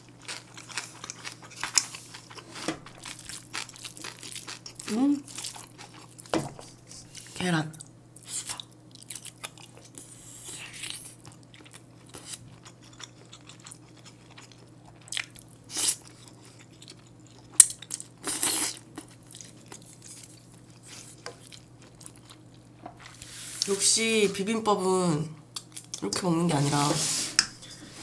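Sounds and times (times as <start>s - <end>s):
close chewing: 0.0s - 6.3s, 8.2s - 23.2s.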